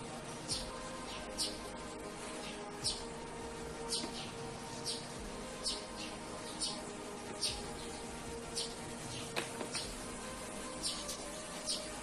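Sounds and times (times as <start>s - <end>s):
soft steady tones: 0.0s - 12.0s
bird chirping: 0.3s - 12.0s.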